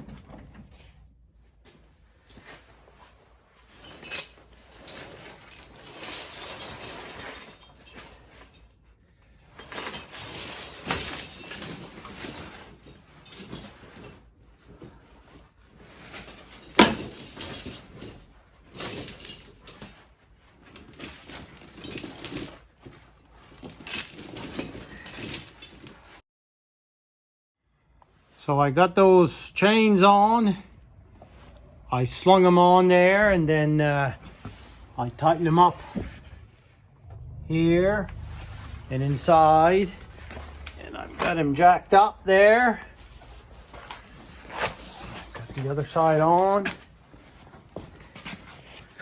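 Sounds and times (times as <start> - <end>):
steel chains clinking and jangling: 3.6 - 26.2, 34.1 - 49.0.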